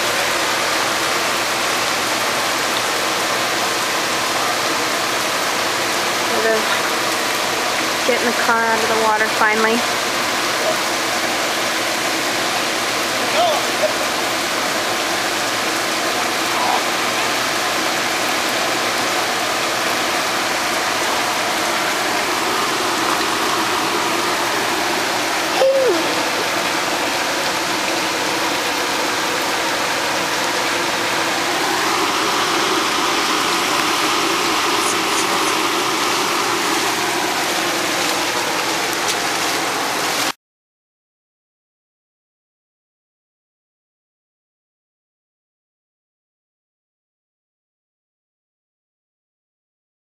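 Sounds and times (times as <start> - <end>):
floodwater rushing: 0.0 - 40.4.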